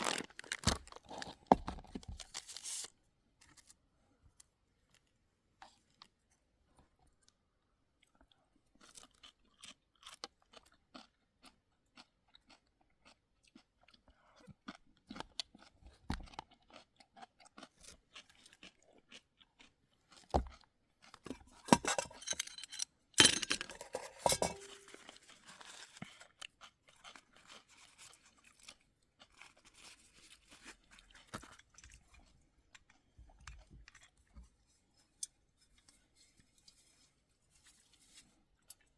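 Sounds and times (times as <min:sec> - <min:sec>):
crunching and clicking: 0:00.0 - 0:01.5.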